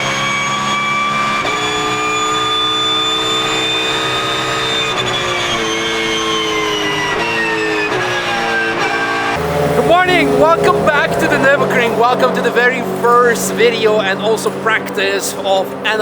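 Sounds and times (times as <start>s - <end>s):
high gear whine: 0.0s - 16.0s
race car engine running hard: 0.0s - 16.0s.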